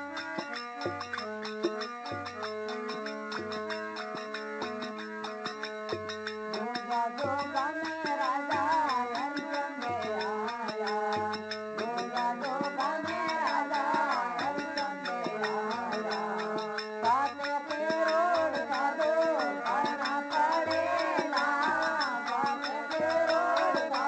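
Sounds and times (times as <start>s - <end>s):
high ticking percussion: 0.0s - 24.0s
sliding devotional melody: 11.8s - 24.0s.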